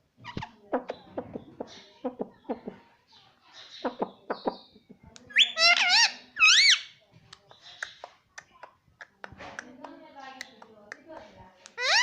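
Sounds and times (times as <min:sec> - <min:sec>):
parrot chattering: 0:05.3 - 0:06.9, 0:11.8 - 0:12.0
parrot warbling calls: 0:05.4 - 0:06.9, 0:11.8 - 0:12.0.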